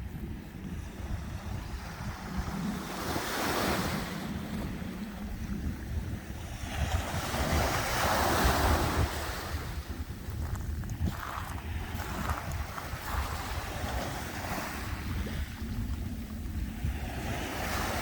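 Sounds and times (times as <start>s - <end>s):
sea waves washing in: 0.0s - 18.0s
wind rumbling on microphone: 0.0s - 18.0s.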